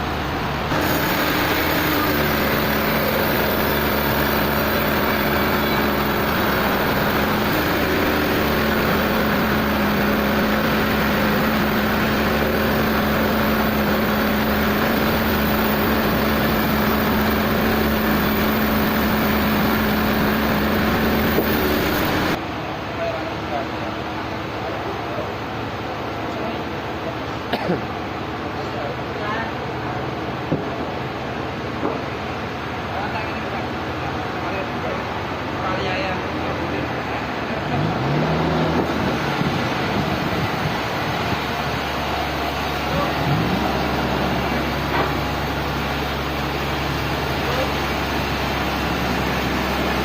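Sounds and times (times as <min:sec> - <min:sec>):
motor hum: 0:00.0 - 0:22.4
sawmill machinery running: 0:00.0 - 0:27.4, 0:28.1 - 0:50.0.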